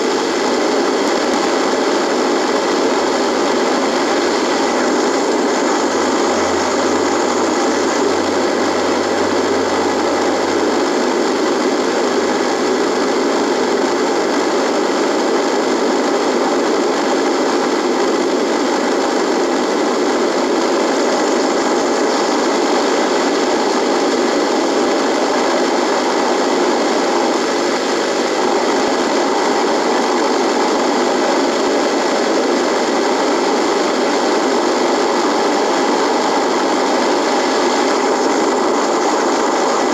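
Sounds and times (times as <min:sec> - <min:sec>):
faint steady tones: 0:00.0 - 0:15.0
radio static buzzing: 0:00.0 - 0:39.9
low hum: 0:03.0 - 0:14.0.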